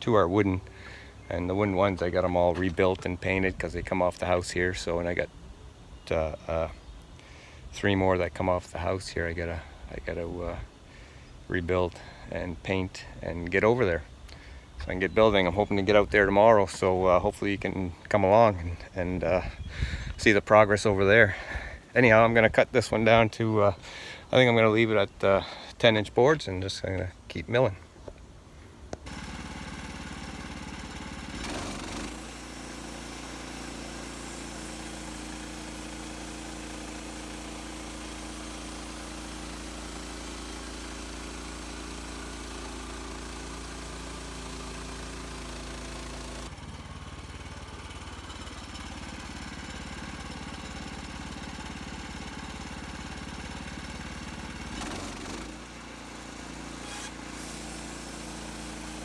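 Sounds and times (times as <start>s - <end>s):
bandsaw mill sawing log: 29.0s - 59.0s.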